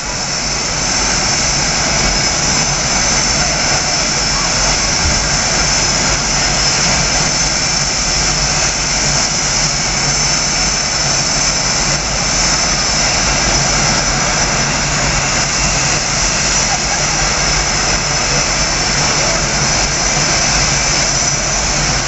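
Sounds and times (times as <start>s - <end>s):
jet engines whining: 0.0s - 22.0s.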